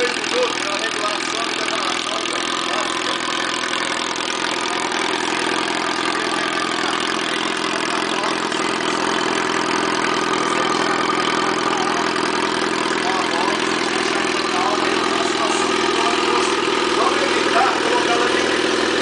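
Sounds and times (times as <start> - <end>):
engine idling through exhaust: 0.0 - 19.0.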